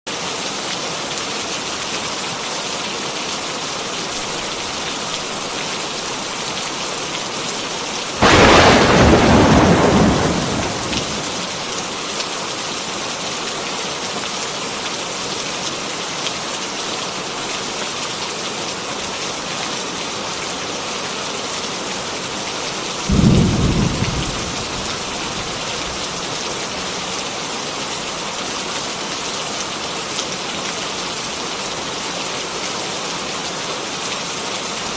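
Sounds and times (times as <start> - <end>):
heavy rain falling: 7.8 - 12.3, 21.3 - 34.9
thunder rumbling: 8.2 - 11.8, 23.1 - 26.2.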